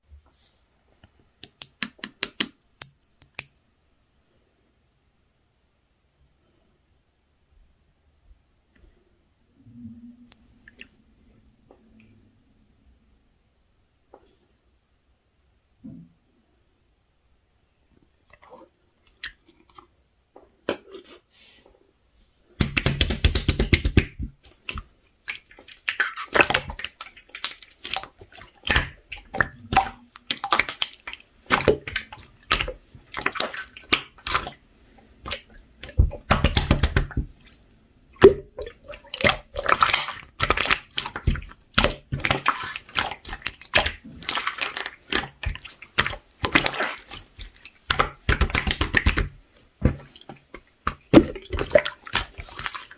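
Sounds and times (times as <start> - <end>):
slime squishing with sticky clicks: 1.2 - 3.6, 22.6 - 37.6, 38.2 - 52.9.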